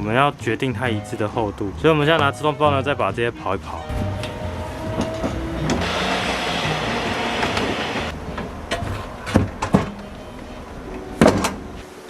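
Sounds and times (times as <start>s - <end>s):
planer cutting wooden board: 3.9s - 8.1s.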